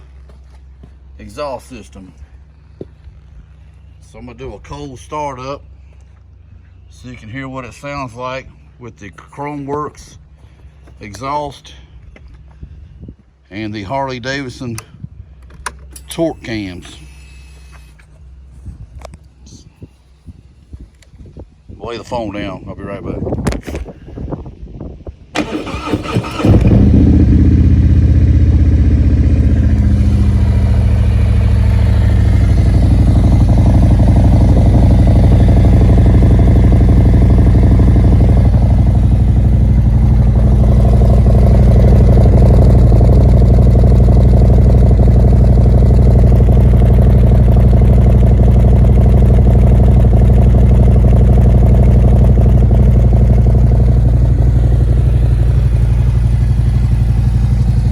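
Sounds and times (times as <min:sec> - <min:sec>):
starter cranking: 0:25.4 - 0:27.0
motorcycle engine idling: 0:25.4 - 0:57.9.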